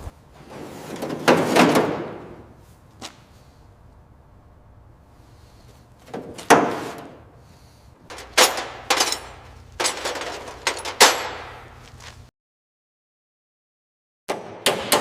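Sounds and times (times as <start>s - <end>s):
sharp ringing bangs: 10.9s - 11.7s.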